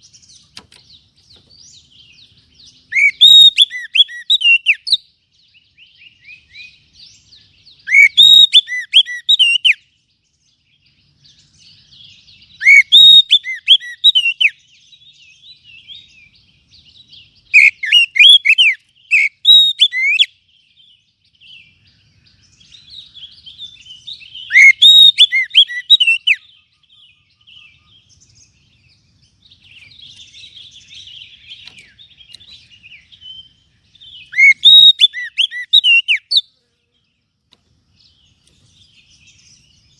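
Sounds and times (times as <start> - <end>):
bird twittering: 0.0 - 10.0, 10.8 - 36.5
bird singing whistled phrases: 2.6 - 10.0, 11.7 - 16.3, 17.2 - 28.6, 29.6 - 36.5.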